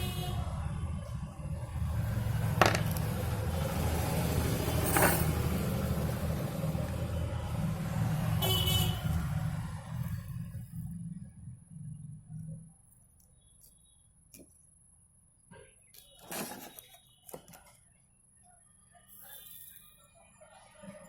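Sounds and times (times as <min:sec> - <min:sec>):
road traffic rumble: 0:00.0 - 0:12.8.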